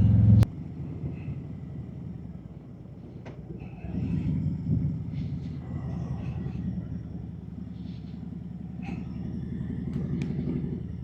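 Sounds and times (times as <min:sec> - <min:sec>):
motorcycle engine running: 0:00.0 - 0:01.1.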